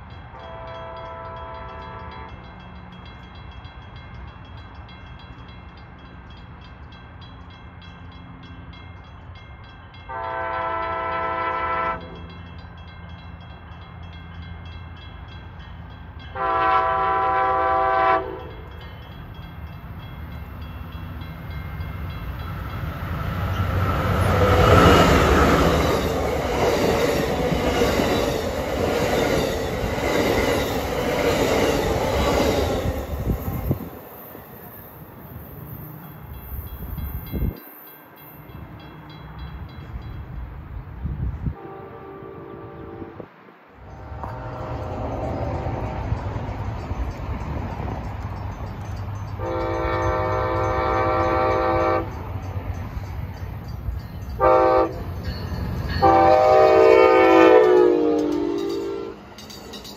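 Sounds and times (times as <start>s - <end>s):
locomotive air horn: 0.3s - 2.4s, 10.1s - 12.2s, 16.3s - 18.7s, 41.5s - 43.3s, 49.4s - 52.2s, 54.4s - 55.0s, 56.0s - 59.2s
train wheels clacking over rails: 20.2s - 34.8s, 44.1s - 59.9s.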